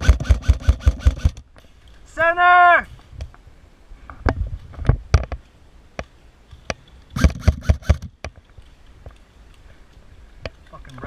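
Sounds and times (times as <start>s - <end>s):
airsoft gun shots: 0.0s - 1.4s, 7.2s - 8.1s.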